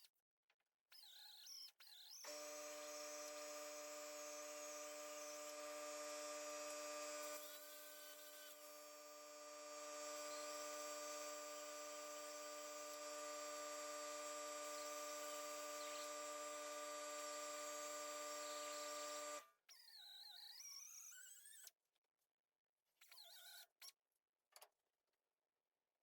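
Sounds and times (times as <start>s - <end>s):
power tool motor running: 2.3s - 19.4s.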